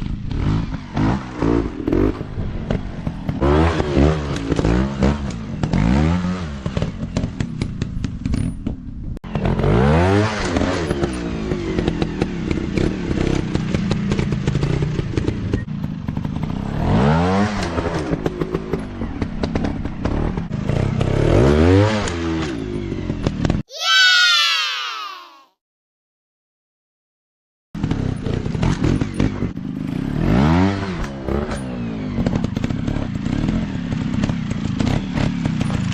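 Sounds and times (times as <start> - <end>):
dirt bike engine revving: 3.3 - 7.1, 27.8 - 35.8.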